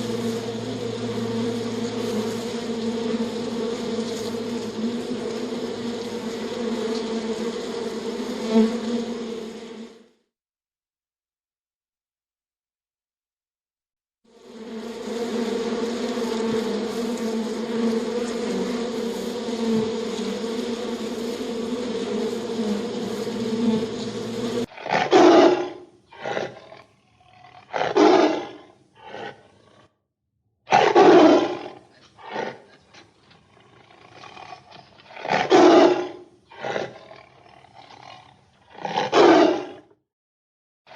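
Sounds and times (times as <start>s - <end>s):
flying insect buzzing: 0.0s - 10.2s, 14.3s - 29.8s, 31.1s - 39.1s
big cat roaring: 24.7s - 30.0s, 30.7s - 40.0s.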